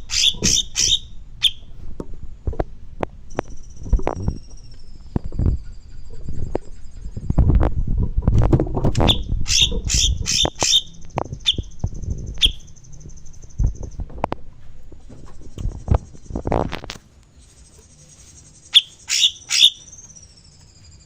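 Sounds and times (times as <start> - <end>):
songbird calling and trilling: 0.0 - 1.7, 3.3 - 7.5, 9.0 - 14.1, 17.4 - 21.0.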